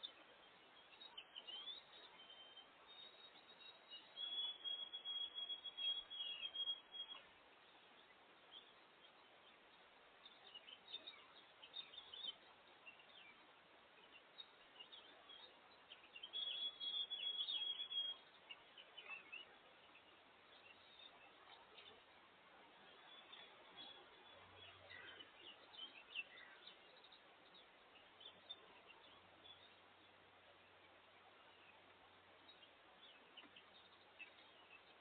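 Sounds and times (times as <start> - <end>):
faint outdoor hiss: 0.0 - 35.0
high trilled birdsong: 0.0 - 35.0
songbirds chirping: 0.0 - 35.0.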